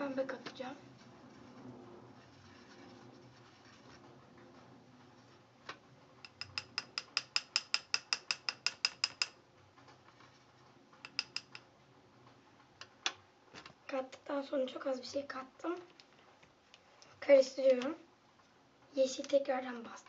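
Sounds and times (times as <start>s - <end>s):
ratchet-like mechanism clicking: 11.1s - 11.6s.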